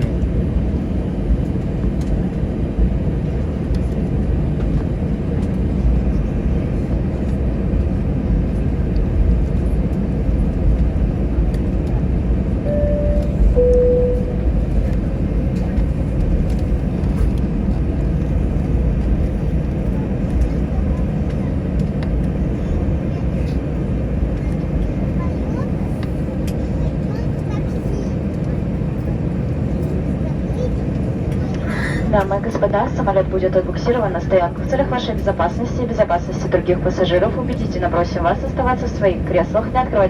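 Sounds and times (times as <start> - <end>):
aircraft cabin low rumble: 0.0 - 40.0
two-note cabin chime: 12.7 - 14.6.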